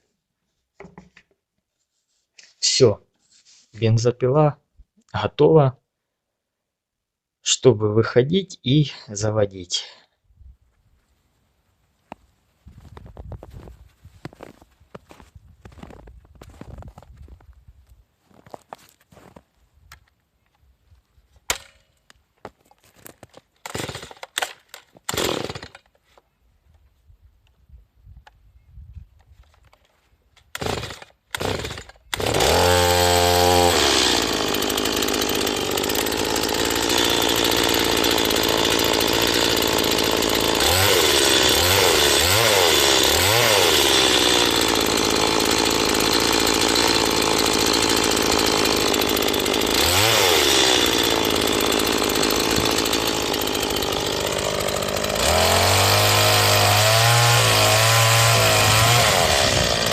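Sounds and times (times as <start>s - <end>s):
chainsaw running: 23.6s - 25.9s, 30.5s - 59.9s.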